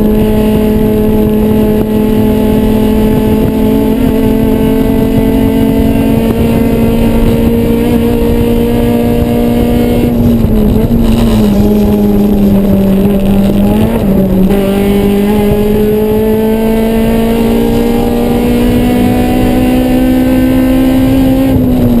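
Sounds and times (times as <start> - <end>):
car engine at high revs: 0.0 - 22.0.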